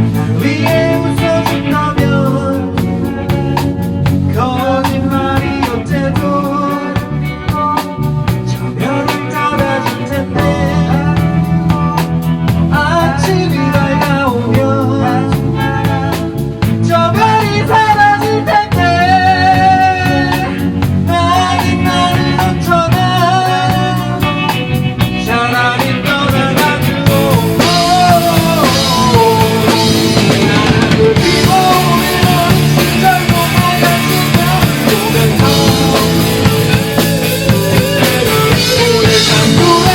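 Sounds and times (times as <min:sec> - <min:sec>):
rock band playing live: 0:00.0 - 0:39.9
lead guitar bending notes: 0:24.1 - 0:39.9.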